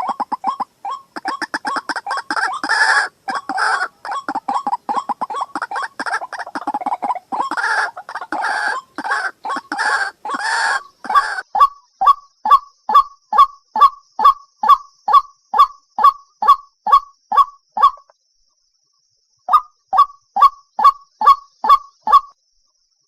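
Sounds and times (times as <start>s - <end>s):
waterhen calling: 0.0s - 11.7s.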